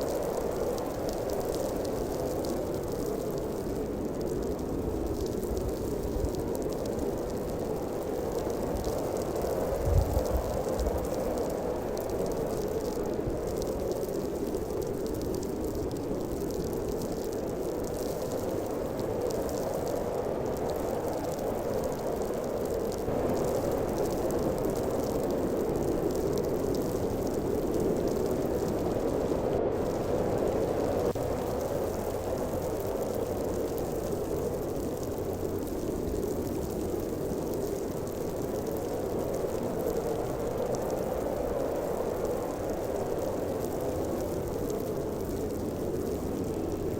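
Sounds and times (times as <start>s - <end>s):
blizzard wind howling: 0.0s - 46.9s
faint ticks of snow: 0.0s - 46.9s
wind blowing hard: 8.5s - 12.0s.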